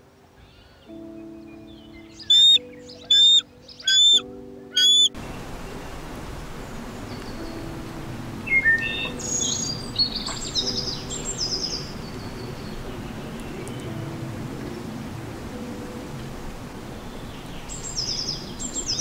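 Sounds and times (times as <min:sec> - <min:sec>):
steady outdoor hiss: 0:00.0 - 0:19.0
bird chirping and singing: 0:00.4 - 0:06.0, 0:06.6 - 0:15.0, 0:16.9 - 0:19.0
loud high bird call: 0:02.0 - 0:05.2.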